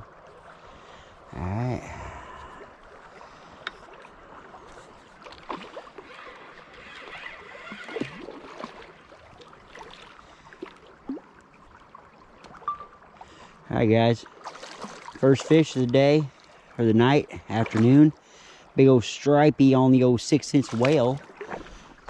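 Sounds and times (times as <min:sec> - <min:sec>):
river water flowing: 0:00.0 - 0:22.0
fish splashing: 0:02.0 - 0:13.3, 0:14.4 - 0:15.5.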